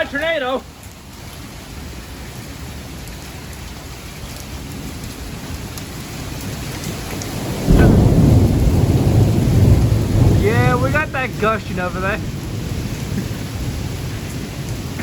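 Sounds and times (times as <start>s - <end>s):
heavy rain falling: 0.0s - 15.0s
thunder rumbling: 6.6s - 15.0s.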